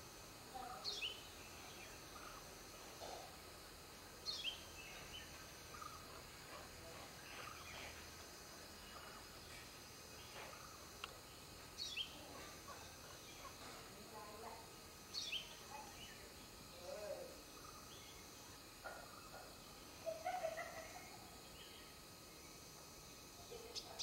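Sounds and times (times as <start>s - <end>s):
faint high-pitched whine: 0.0s - 24.0s
faint bird chirps: 0.6s - 3.3s, 4.2s - 6.6s, 10.2s - 13.8s, 15.1s - 22.7s.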